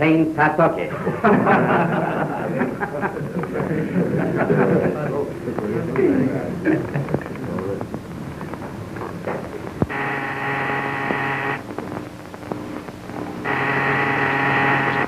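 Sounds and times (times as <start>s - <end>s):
faint clicks and crackle: 5.5s - 15.0s
steady buzzing tone: 7.8s - 15.0s.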